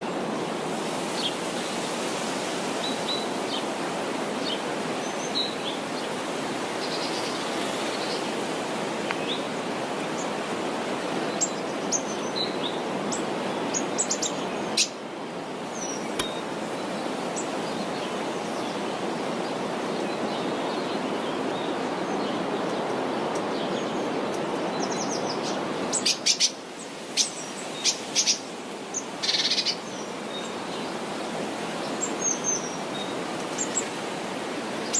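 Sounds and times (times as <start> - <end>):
river water rushing: 0.0 - 34.9
small birds chirping: 15.6 - 22.9, 23.5 - 31.0.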